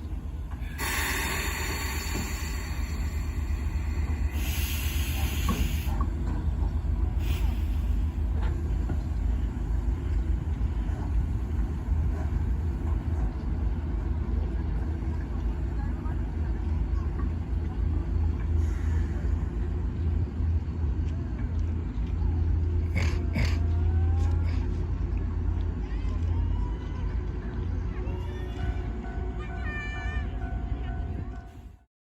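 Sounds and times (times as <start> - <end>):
steam locomotive rumbling: 0.0 - 31.9
steam hissing: 0.6 - 6.4.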